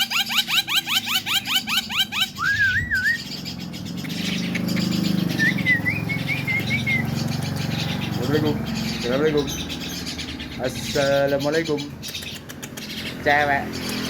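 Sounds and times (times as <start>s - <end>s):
bird chirping and whistling: 0.0s - 14.0s.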